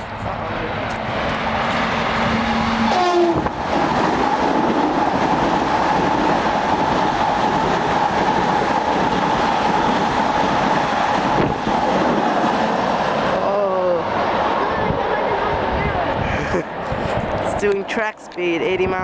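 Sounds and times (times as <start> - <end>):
train passing rush: 0.0 - 19.0
train whine: 0.0 - 19.0.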